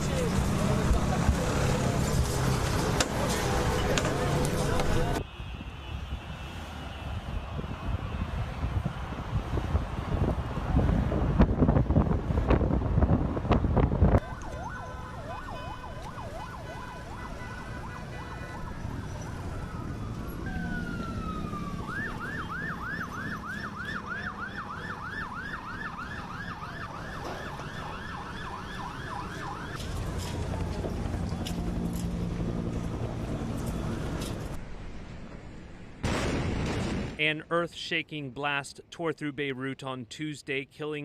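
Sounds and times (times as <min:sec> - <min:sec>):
emergency vehicle siren wail: 0:13.8 - 0:34.6
siren fast yelp: 0:14.2 - 0:29.8.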